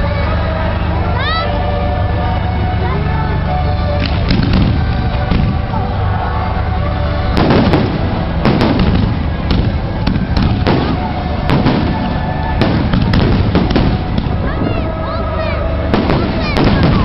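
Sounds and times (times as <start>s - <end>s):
continuous rumble: 0.0s - 17.0s
fireworks bangs: 3.9s - 6.2s, 7.2s - 15.0s, 15.6s - 17.0s.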